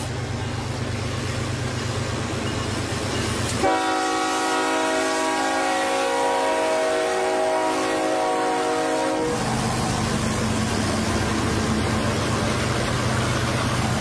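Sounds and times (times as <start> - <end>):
diesel locomotive engine drone: 0.0 - 14.0
train horn: 3.5 - 9.5.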